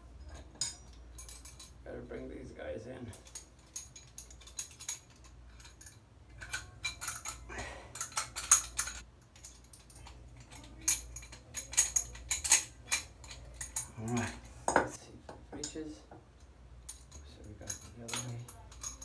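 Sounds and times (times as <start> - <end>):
metal tool clicks and clinks: 0.2 - 1.8, 3.1 - 15.0, 16.8 - 19.0.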